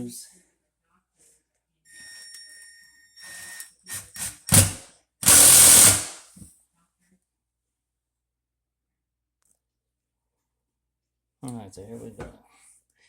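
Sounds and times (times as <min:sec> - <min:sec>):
power drill motor whining: 0:03.2 - 0:06.2.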